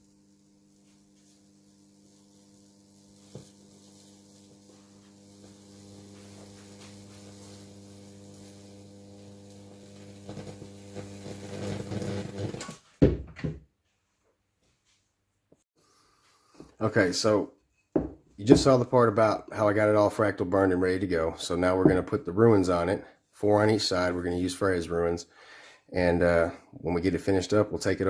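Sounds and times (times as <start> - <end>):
burn crackling and sizzling: 0.0 - 12.8.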